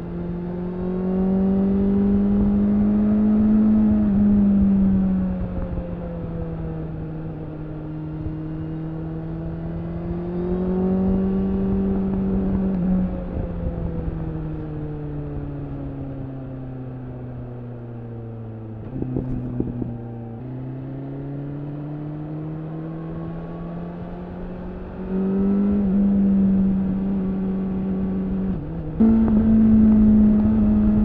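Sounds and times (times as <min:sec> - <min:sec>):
motorcycle engine revving: 0:07.8 - 0:14.7, 0:18.9 - 0:31.0.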